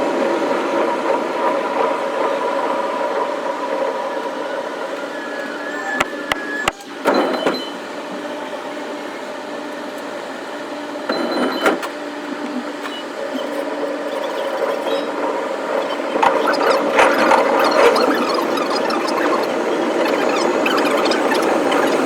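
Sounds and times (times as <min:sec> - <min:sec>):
electric train running hum: 0:00.0 - 0:22.0
train rattling: 0:13.4 - 0:22.0.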